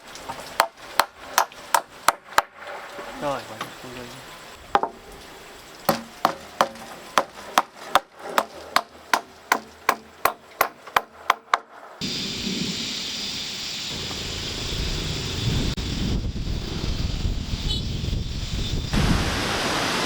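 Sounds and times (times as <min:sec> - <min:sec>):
hammer striking wood: 0:00.6 - 0:02.6, 0:04.7 - 0:05.0, 0:05.9 - 0:11.7
wind rushing: 0:12.0 - 0:20.0.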